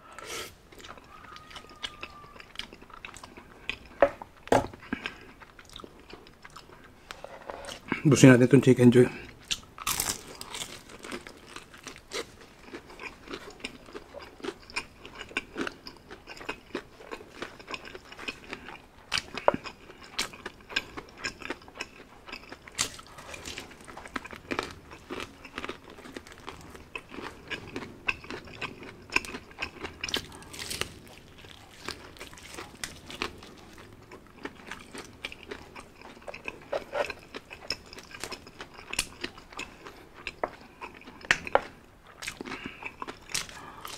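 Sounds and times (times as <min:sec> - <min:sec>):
wet chewing: 0:00.2 - 0:07.0, 0:09.3 - 0:43.9
fried chicken breading crunching: 0:00.8 - 0:03.8, 0:09.5 - 0:18.6, 0:19.2 - 0:41.7.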